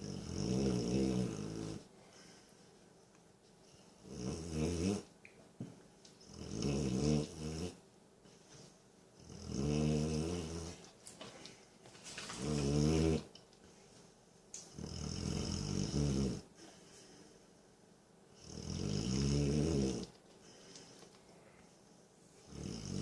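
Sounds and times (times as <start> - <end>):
dog snoring: 0.0 - 1.9, 4.0 - 5.1, 6.2 - 7.8, 9.2 - 10.9, 12.3 - 13.3, 14.7 - 16.5, 18.4 - 20.1, 22.5 - 23.0.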